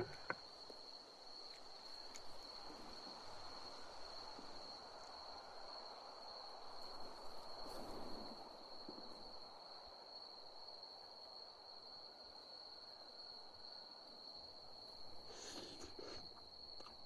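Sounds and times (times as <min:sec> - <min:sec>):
insects trilling: 0:00.0 - 0:08.3, 0:13.3 - 0:17.0.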